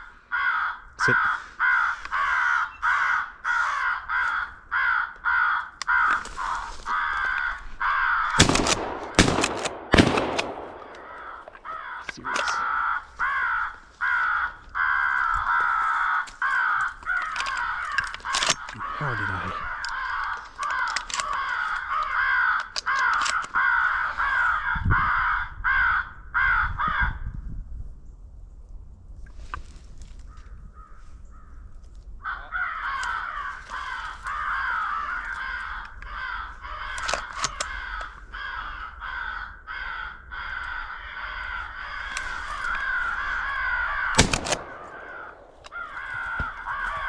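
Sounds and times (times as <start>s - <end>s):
crow cawing: 0.0s - 27.2s, 32.2s - 47.0s
shotgun blasts: 8.4s - 11.6s, 43.1s - 46.5s.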